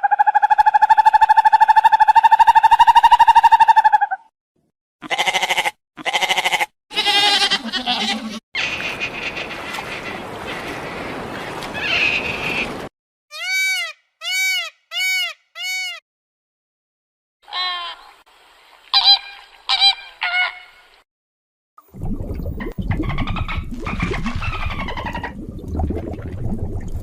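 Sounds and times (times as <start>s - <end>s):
animal calls: 11.8s - 12.8s.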